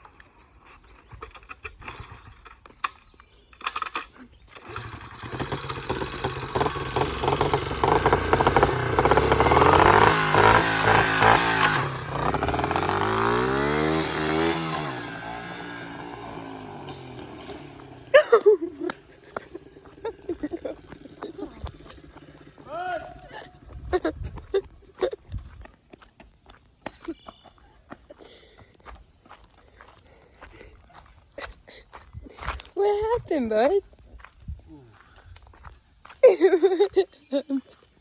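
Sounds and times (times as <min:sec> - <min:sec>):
dirt bike engine revving: 0:04.6 - 0:24.1.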